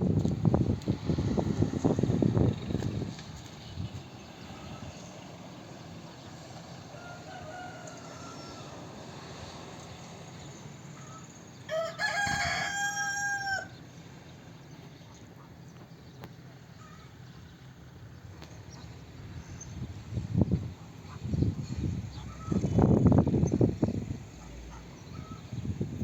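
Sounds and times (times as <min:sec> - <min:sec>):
rooster crowing: 0:06.9 - 0:08.9, 0:11.0 - 0:13.8.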